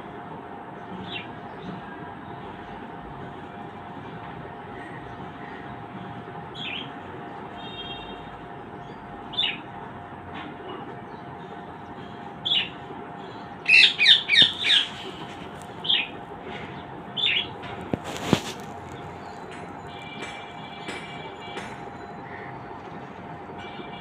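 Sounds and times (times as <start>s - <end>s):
pet birds chirping and squawking: 6.5s - 7.0s, 9.3s - 9.6s, 12.0s - 19.5s.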